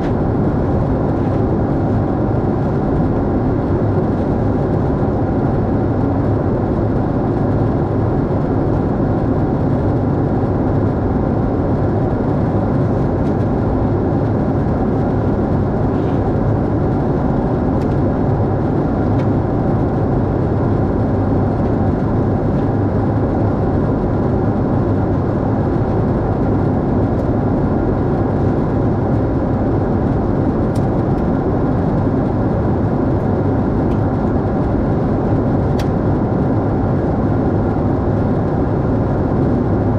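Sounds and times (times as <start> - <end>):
airliner deep hum and rush: 0.0 - 39.9.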